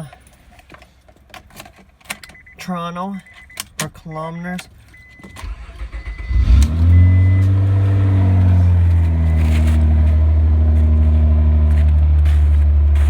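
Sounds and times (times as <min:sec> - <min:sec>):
engine starting and idling: 0:05.3 - 0:12.5.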